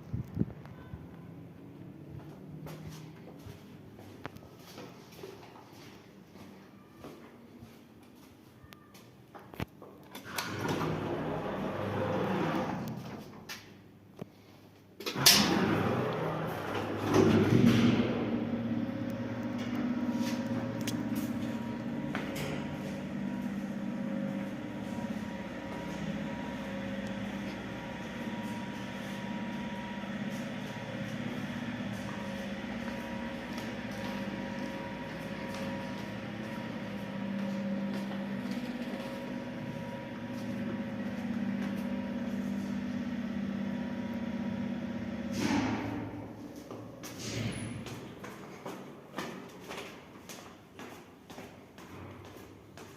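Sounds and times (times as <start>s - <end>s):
lift running in shaft: 10.2s - 13.2s, 15.2s - 48.3s.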